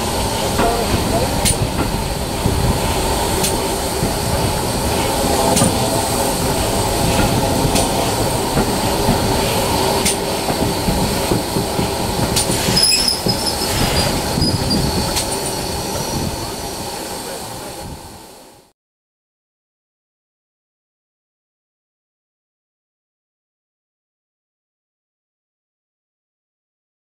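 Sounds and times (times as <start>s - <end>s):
train wheels rumbling on track: 0.0s - 18.7s
high wheel squeal: 12.5s - 16.2s.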